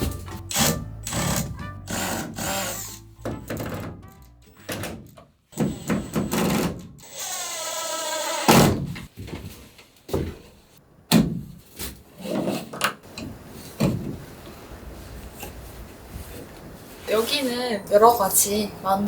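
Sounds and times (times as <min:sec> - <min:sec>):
power drill running: 0:00.5 - 0:03.2, 0:05.5 - 0:08.7
sharp wooden knocks and clatters: 0:03.2 - 0:05.2.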